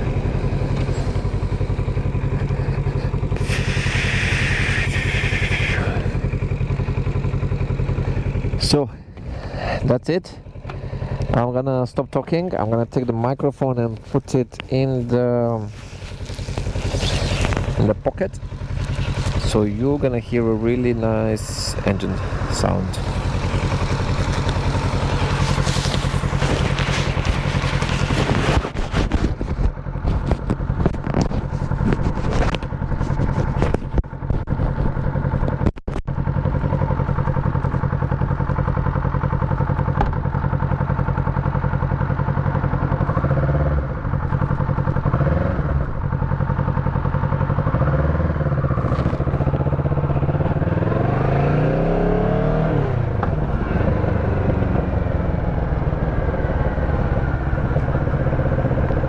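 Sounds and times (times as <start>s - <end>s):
motorcycle engine running: 0.0s - 59.0s
microphone handling rustle: 12.6s - 19.6s, 22.2s - 36.0s, 48.7s - 50.4s.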